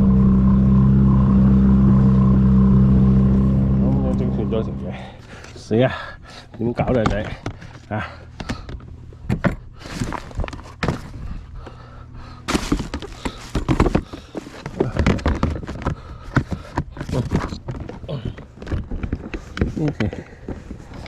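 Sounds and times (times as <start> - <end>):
steady low hum: 0.0 - 21.0
knocks and thuds: 12.5 - 19.3.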